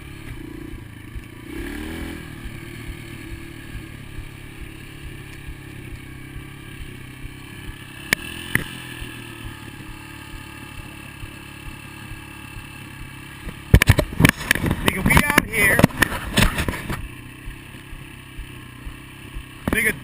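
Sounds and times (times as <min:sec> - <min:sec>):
dirt bike engine running: 0:00.0 - 0:20.0
sharp clicks: 0:08.0 - 0:08.8, 0:13.4 - 0:17.1.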